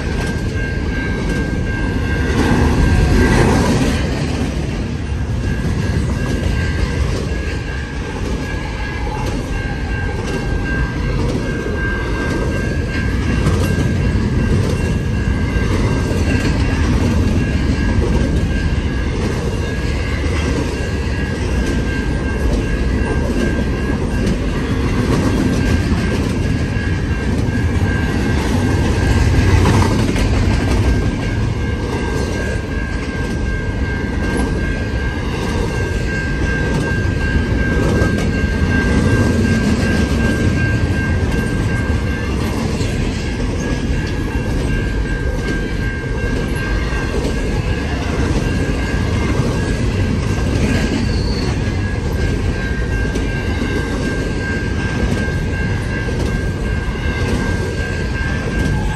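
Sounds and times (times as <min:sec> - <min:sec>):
train wheels rumbling and clattering: 0:00.0 - 0:58.9.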